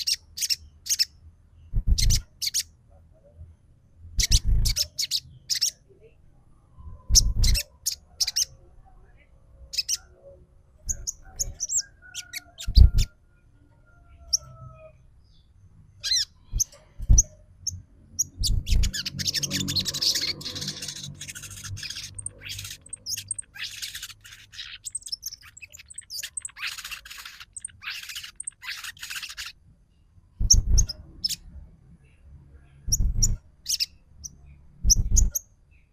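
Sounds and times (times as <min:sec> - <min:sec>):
bird chirps and chatter: 0:00.0 - 0:01.2, 0:01.8 - 0:02.8, 0:04.1 - 0:05.9, 0:07.0 - 0:08.6, 0:09.6 - 0:13.2, 0:16.0 - 0:29.6, 0:30.4 - 0:31.5, 0:32.8 - 0:35.5.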